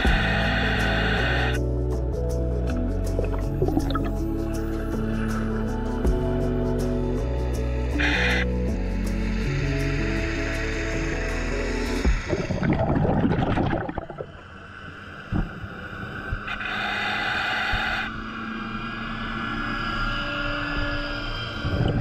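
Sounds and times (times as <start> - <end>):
regulator bubbling underwater: 3.2 - 4.1, 12.1 - 14.4
boat motor whine underwater: 3.2 - 4.2, 12.1 - 22.0.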